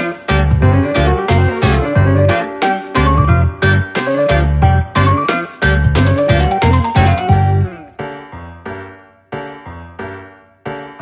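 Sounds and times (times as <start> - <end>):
keyboard music phrase: 0.0 - 8.4.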